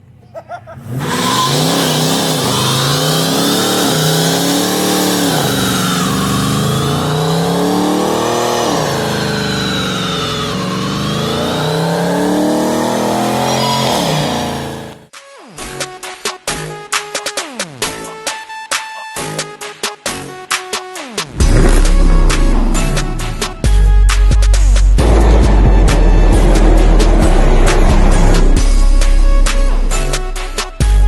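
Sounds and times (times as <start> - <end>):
car engine revving hard: 0.7 - 15.1, 21.4 - 23.8, 25.0 - 28.7.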